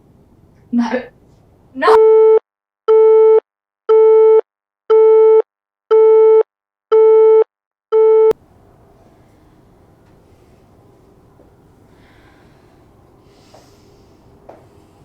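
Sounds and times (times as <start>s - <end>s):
telephone busy tone beeps: 7.0s - 7.4s, 8.0s - 8.3s.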